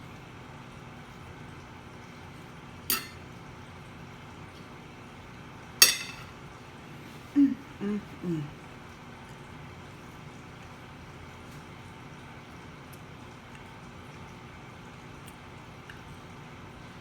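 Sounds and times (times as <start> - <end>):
cutlery clinking against a plate: 2.9 - 3.2, 5.8 - 6.4.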